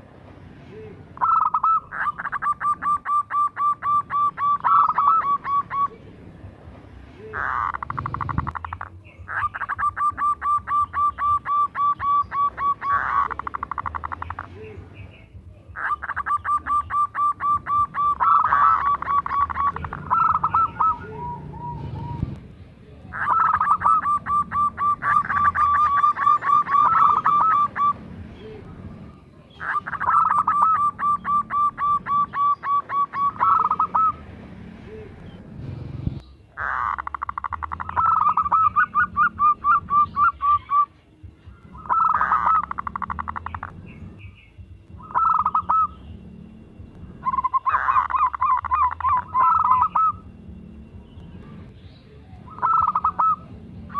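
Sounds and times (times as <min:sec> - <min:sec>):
dove cooing: 0:00.8 - 0:06.1, 0:07.3 - 0:14.8, 0:15.8 - 0:22.4, 0:23.1 - 0:28.7, 0:29.6 - 0:34.2, 0:36.6 - 0:40.9, 0:41.7 - 0:43.7, 0:45.0 - 0:46.0, 0:47.2 - 0:50.3, 0:52.5 - 0:53.6.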